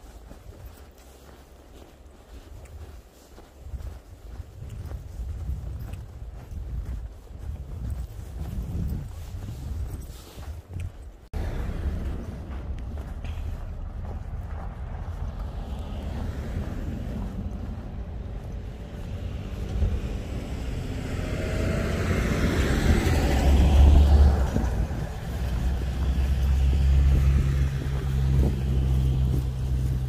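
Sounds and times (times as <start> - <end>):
low rumble of traffic: 0.0 - 30.0
car driving past: 11.4 - 30.0.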